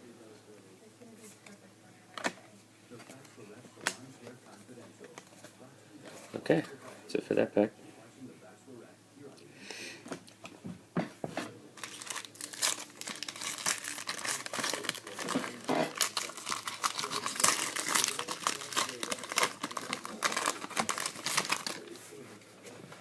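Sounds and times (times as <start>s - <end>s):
foil wrapper crinkling and tearing: 11.8s - 22.0s.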